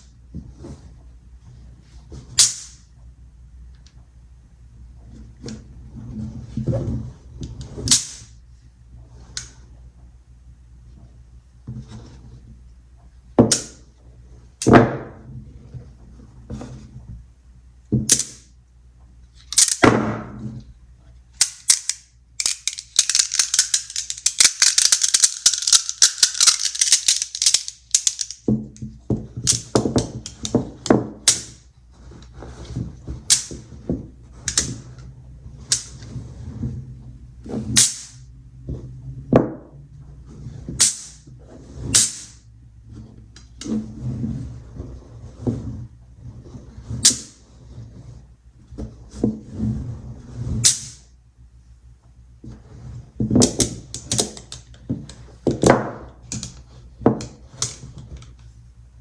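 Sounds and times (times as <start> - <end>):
magnet balls clicking together: 19.4 - 19.8, 21.4 - 28.5.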